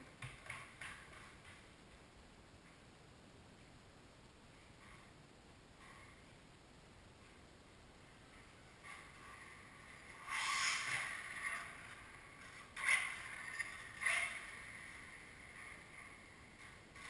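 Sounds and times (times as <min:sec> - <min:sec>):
faint steady whine: 0:00.0 - 0:17.0
toy car electric motor whirring: 0:10.2 - 0:11.8.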